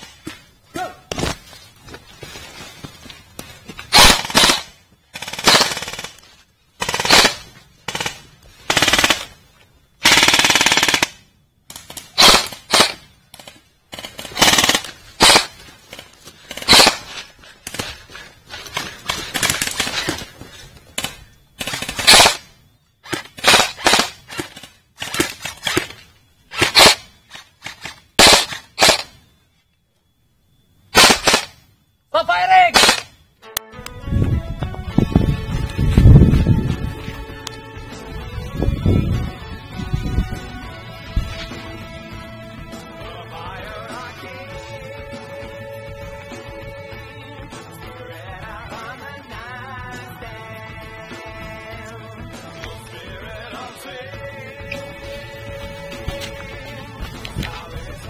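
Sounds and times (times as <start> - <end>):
airsoft guns firing bursts: 3.9 - 9.4, 10.0 - 20.3, 21.0 - 29.2, 30.9 - 31.6, 32.5 - 33.2.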